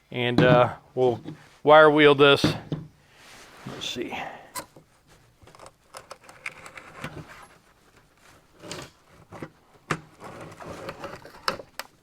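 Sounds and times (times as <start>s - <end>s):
metal seat tracks clicking and scraping: 3.6s - 12.0s.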